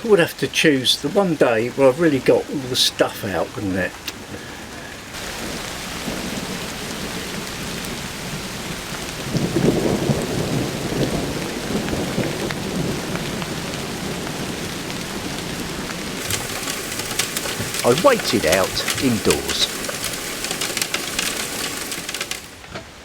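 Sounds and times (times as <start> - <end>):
heavy rain hissing: 0.0 - 23.0
thunder rumbling: 5.2 - 22.6.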